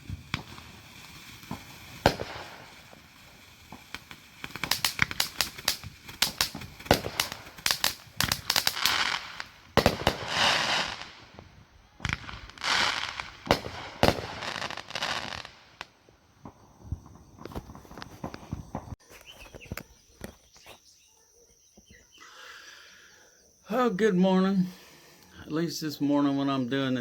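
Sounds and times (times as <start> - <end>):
fireworks hissing bursts: 0.0 - 19.9, 24.5 - 26.0
fireworks crackling pops: 0.0 - 20.9.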